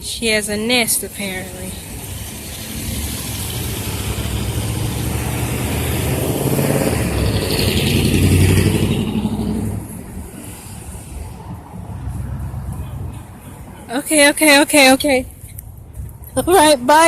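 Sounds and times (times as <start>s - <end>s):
car driving past: 1.8s - 13.9s.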